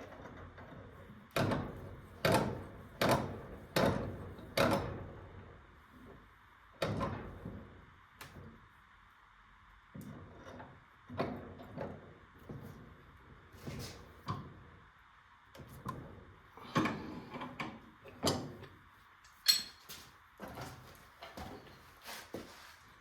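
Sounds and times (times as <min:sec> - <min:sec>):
tools knocking and scraping: 0:19.3 - 0:22.5.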